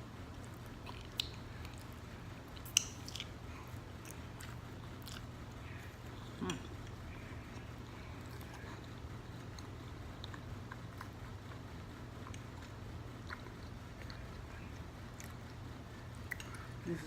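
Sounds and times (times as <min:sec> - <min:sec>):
wet chewing and smacking: 0:00.2 - 0:16.8
sharp mouth clicks: 0:02.6 - 0:03.4.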